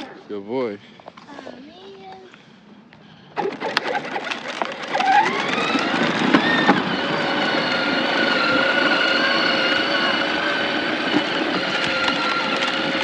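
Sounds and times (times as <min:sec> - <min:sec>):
wheels crackling and clicking: 0:01.0 - 0:13.0
toy vehicle motor whine: 0:03.4 - 0:13.0.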